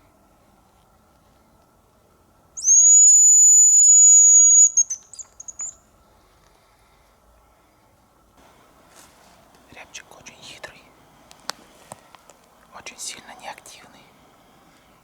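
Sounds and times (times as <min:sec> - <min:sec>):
bird decoy whistle: 0:02.6 - 0:05.8.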